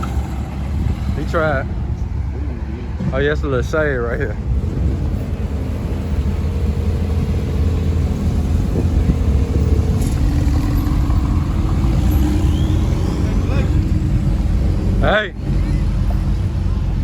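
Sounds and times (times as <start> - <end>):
car engine running: 4.5 - 17.0.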